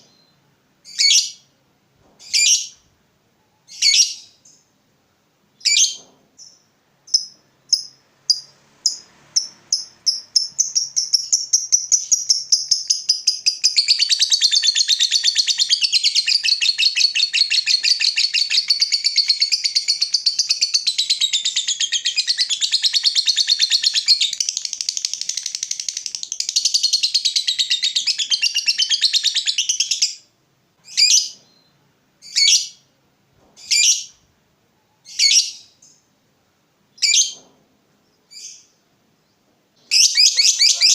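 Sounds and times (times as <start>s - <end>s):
lovebird chattering song: 5.6s - 30.2s, 39.9s - 40.9s.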